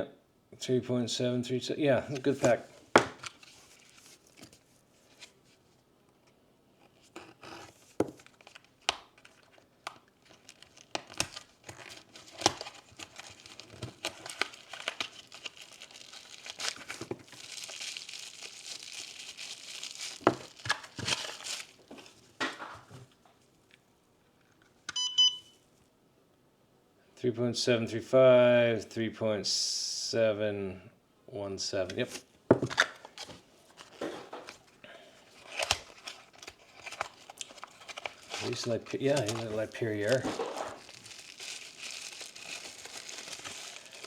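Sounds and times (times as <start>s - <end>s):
plastic packaging crinkling and tearing: 7.7s - 22.3s, 32.6s - 44.0s
short electronic beep: 25.0s - 25.5s.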